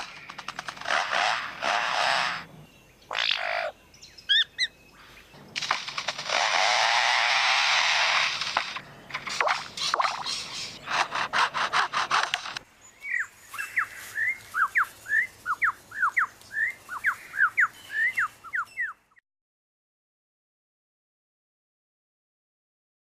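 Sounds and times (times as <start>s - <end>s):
bird mimicking a chainsaw: 0.0s - 2.5s, 5.6s - 12.6s.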